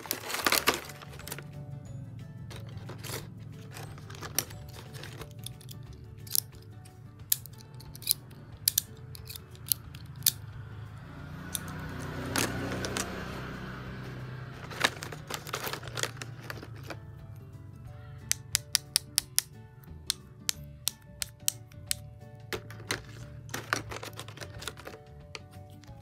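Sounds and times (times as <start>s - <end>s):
plastic pieces clicking and snapping: 0.0s - 1.4s, 2.5s - 10.6s, 11.5s - 13.1s, 14.6s - 17.0s, 18.2s - 26.0s
rustling: 0.0s - 1.6s, 2.4s - 8.2s, 14.5s - 17.2s, 22.5s - 26.0s
background music: 0.0s - 26.0s.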